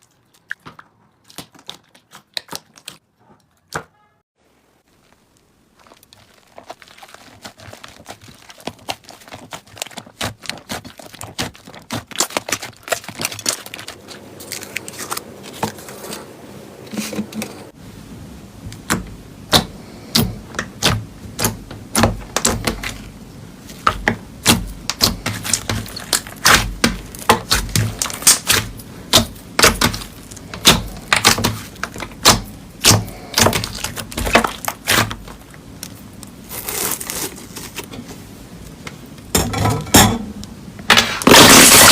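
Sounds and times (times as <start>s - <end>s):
slime squished by hand: 5.4s - 15.5s, 18.8s - 37.8s.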